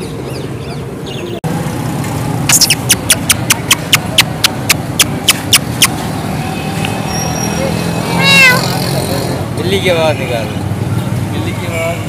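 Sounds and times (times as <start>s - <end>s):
bird calling sharp high notes: 2.5s - 6.0s.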